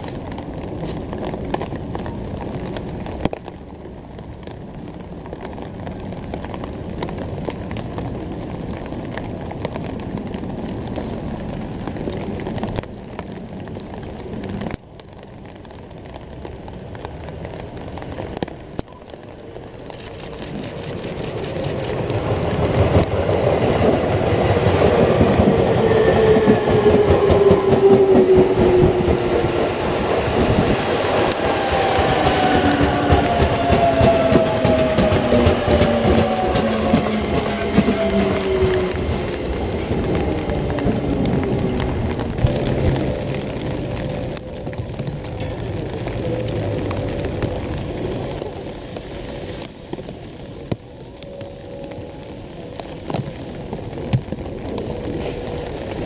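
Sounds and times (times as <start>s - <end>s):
train wheels clattering over rail joints: 31.3s - 39.5s.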